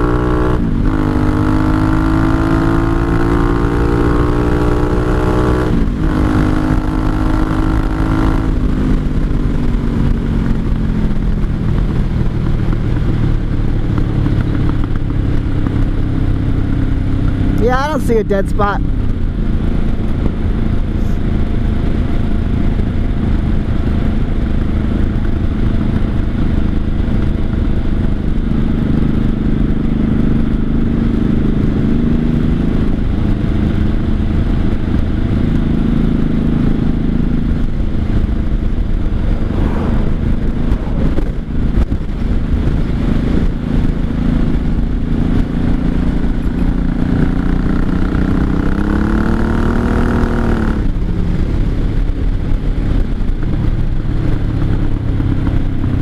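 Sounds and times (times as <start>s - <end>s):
motorcycle engine revving: 0.0s - 56.0s
person talking: 17.6s - 18.8s.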